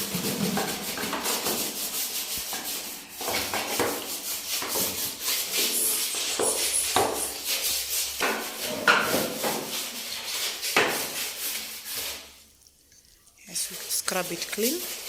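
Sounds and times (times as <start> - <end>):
brush scrubbing a floor: 0.0 - 15.0.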